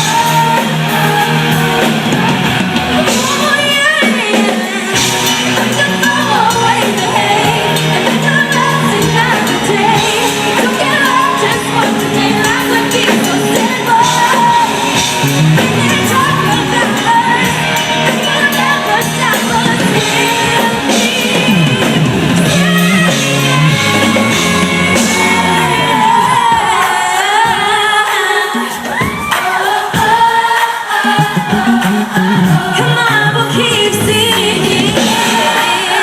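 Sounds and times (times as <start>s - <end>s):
crowd shouting: 0.0s - 3.7s, 35.0s - 36.0s
woman singing with band: 0.0s - 36.0s.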